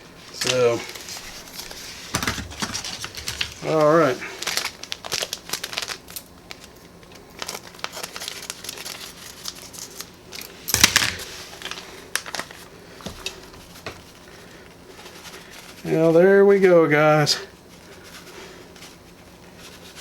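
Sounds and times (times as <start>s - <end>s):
seasoning packet crinkling: 2.5s - 12.7s.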